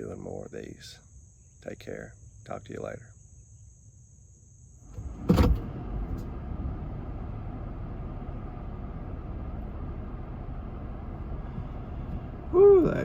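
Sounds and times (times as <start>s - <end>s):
vehicle engine running: 4.9s - 13.0s
air-conditioning fan blowing: 5.1s - 13.0s.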